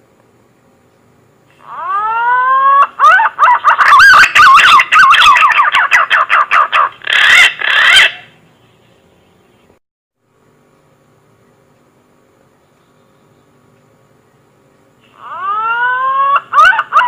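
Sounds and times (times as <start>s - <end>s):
pigeon whistling song: 1.8s - 8.3s.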